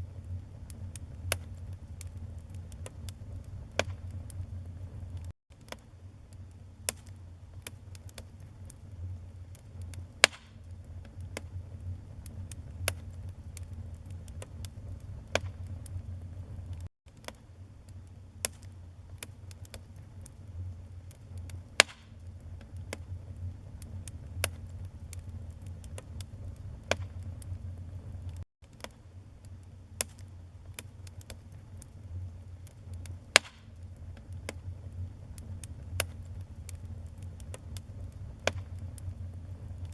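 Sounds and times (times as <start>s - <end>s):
low rumble of flames: 0.0s - 39.9s
wood crackling and popping: 0.0s - 39.9s.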